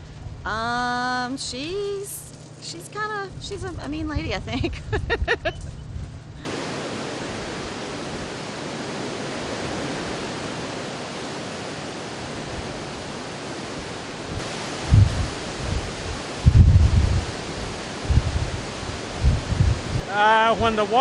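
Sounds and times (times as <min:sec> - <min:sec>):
hurricane wind rushing: 0:03.2 - 0:21.0
surf: 0:06.4 - 0:21.0
low thuds: 0:14.4 - 0:17.3.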